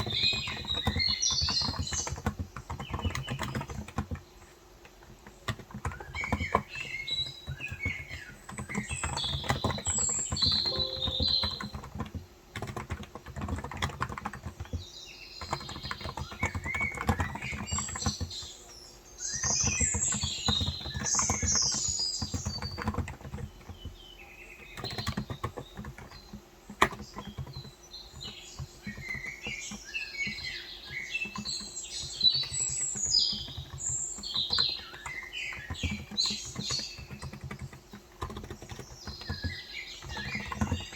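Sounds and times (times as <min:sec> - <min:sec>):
small birds chirping: 0:00.0 - 0:40.9
typing on a keyboard: 0:00.0 - 0:40.9.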